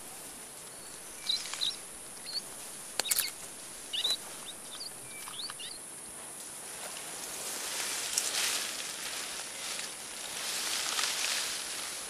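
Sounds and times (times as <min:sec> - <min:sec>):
small birds chirping: 0:00.0 - 0:05.9
steady background hiss: 0:00.0 - 0:12.0
sharp clicks: 0:01.2 - 0:05.8.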